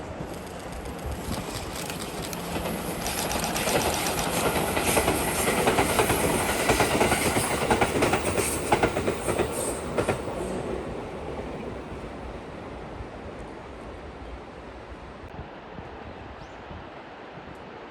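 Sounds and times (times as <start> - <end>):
train wheels clacking on rails: 0.0 - 12.0.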